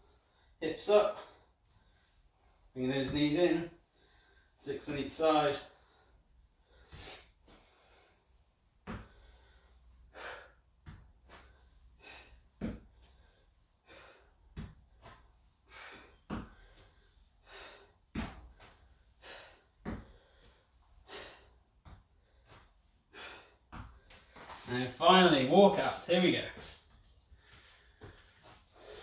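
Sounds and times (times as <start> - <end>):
person breathing hard: 3.8 - 4.6, 5.7 - 24.7, 26.6 - 29.0.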